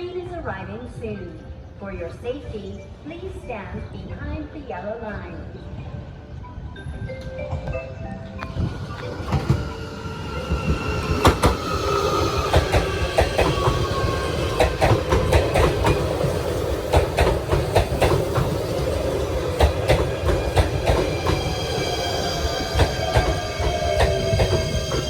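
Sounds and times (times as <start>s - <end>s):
train wheels clacking: 8.4s - 25.0s.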